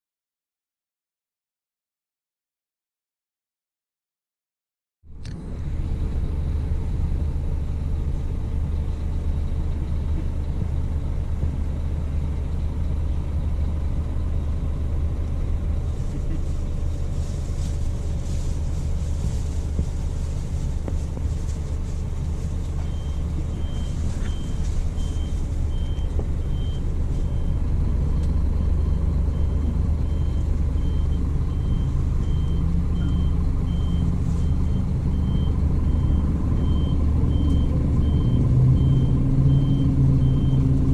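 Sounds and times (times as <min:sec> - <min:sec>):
diesel engine droning: 0:05.0 - 0:40.9
reversing alarm beeping: 0:22.8 - 0:40.7.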